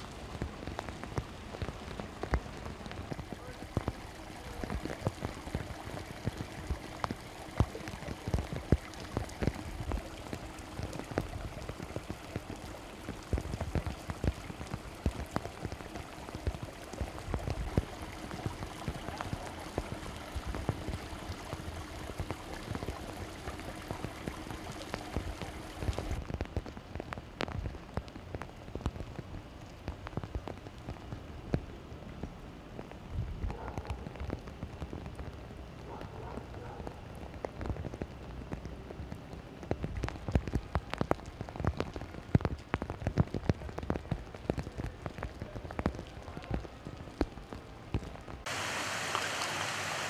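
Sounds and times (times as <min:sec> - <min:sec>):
heavy rain pouring: 0:00.0 - 0:26.4, 0:36.5 - 0:50.0.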